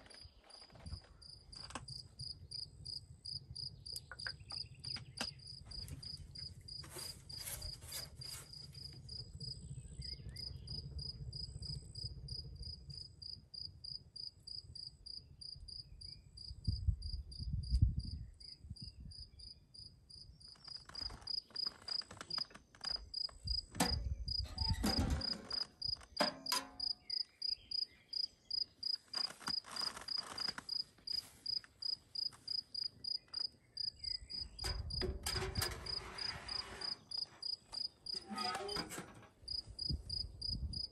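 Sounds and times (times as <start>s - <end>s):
rustling noise: 5.7s - 9.2s, 20.5s - 23.8s, 28.8s - 32.7s, 35.1s - 40.2s
cricket chirping: 24.3s - 35.0s.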